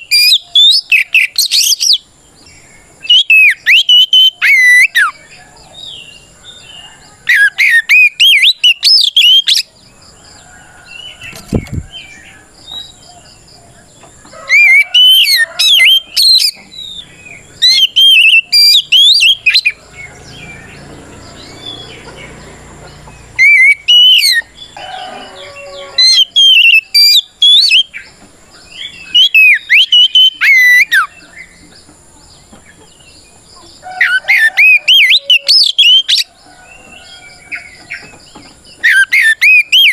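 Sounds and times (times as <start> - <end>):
bird singing whistled phrases: 3.1 - 5.2, 7.3 - 9.7, 17.6 - 19.8, 23.4 - 24.5, 25.6 - 27.9, 29.0 - 31.1, 34.0 - 36.3, 38.8 - 39.9.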